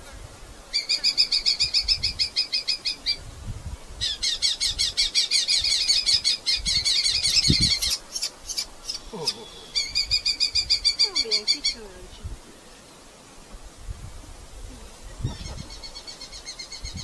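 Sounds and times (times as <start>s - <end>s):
falcon calling: 4.0s - 11.9s.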